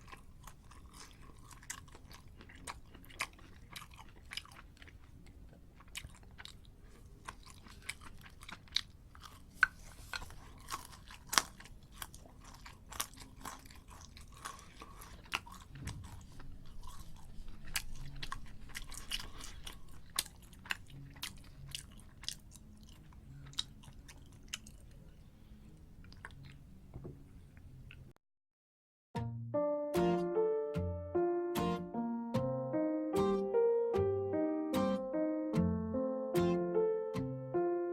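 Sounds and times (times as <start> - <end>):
person chewing crisp food: 0.0 - 26.7.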